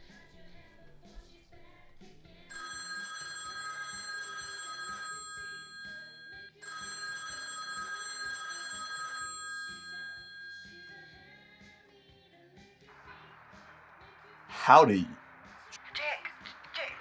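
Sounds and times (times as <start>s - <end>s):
telephone ringing: 2.5s - 11.1s
background music: 14.5s - 15.2s.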